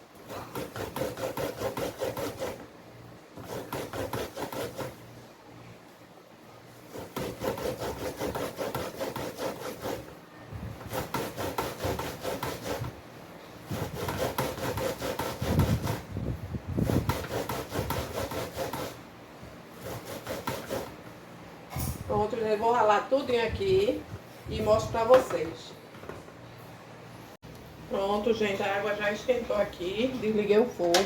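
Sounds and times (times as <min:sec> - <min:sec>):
corn rasping on metal grater: 0:00.2 - 0:02.6, 0:03.4 - 0:05.0, 0:06.9 - 0:10.1, 0:10.8 - 0:13.0, 0:13.7 - 0:16.1, 0:16.8 - 0:19.0, 0:19.8 - 0:21.0.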